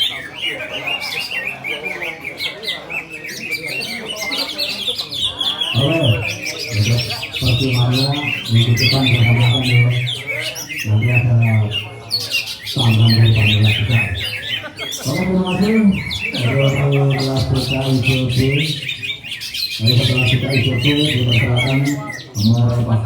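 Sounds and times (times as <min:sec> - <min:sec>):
birds chirping and trilling: 0:00.0 - 0:23.0
crowd voices: 0:00.0 - 0:23.0.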